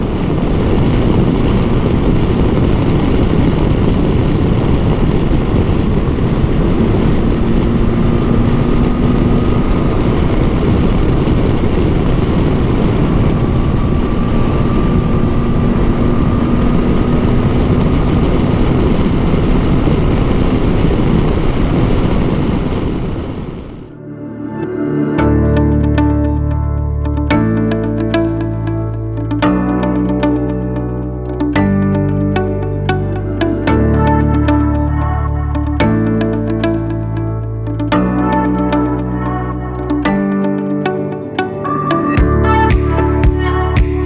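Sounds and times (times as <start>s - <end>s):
motorcycle engine drone: 0.0s - 24.0s
wind noise: 0.0s - 24.0s
faint steady whine: 0.0s - 31.7s.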